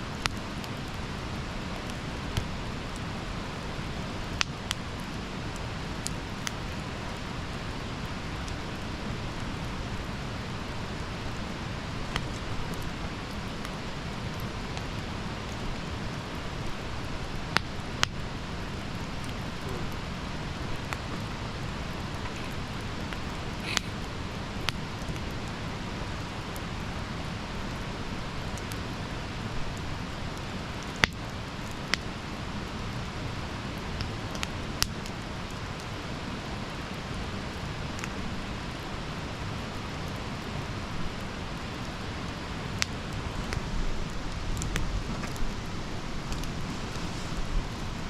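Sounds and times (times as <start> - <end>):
burning wood crackling and popping: 0.0 - 48.0
campfire hissing: 0.0 - 48.0.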